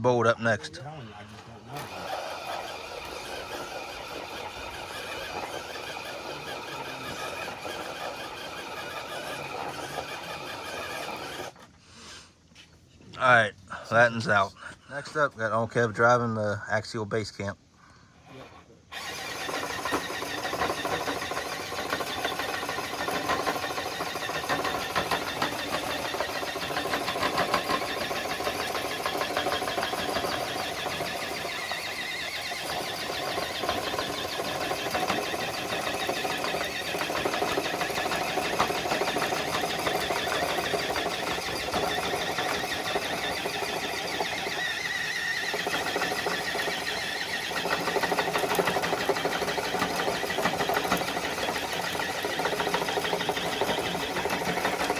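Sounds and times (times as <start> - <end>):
electric drivetrain whirring: 1.3 - 11.7, 18.9 - 54.9.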